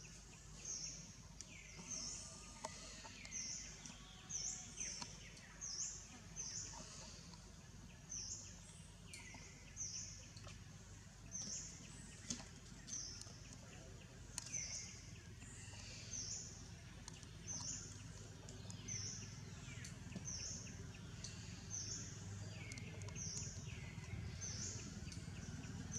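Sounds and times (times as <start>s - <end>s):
low background rumble: 0.0s - 25.9s
faint clicks: 2.5s - 4.1s, 11.3s - 15.8s, 16.9s - 25.9s.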